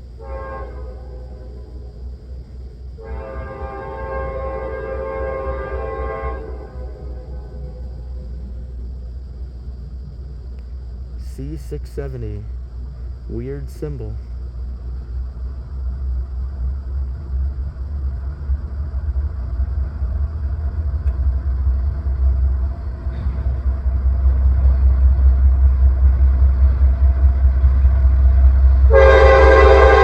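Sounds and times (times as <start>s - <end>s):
locomotive air horn chord: 0.0s - 2.1s, 2.9s - 8.8s, 28.9s - 30.0s
diesel locomotives rumbling: 0.0s - 30.0s.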